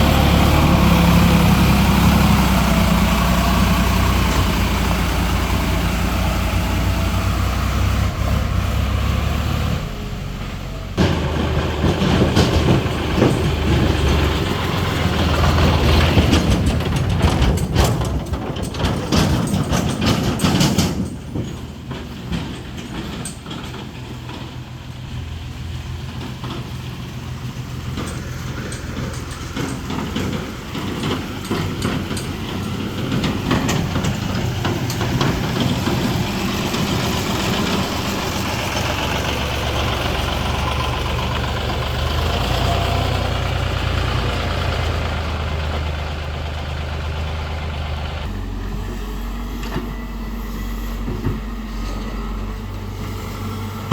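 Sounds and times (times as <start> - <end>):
tractor diesel engine under load: 0.0 - 53.9
loud clatter: 11.0 - 25.1, 26.1 - 48.3.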